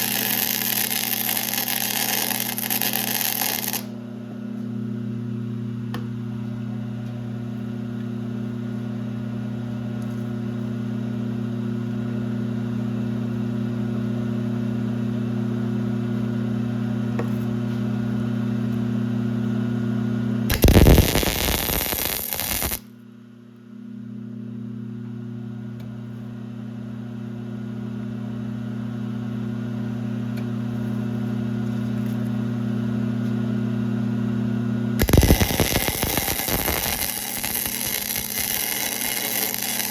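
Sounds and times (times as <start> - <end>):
electric machine hum: 0.0 - 39.9
loud harsh burst of noise: 20.5 - 22.9, 35.0 - 39.9.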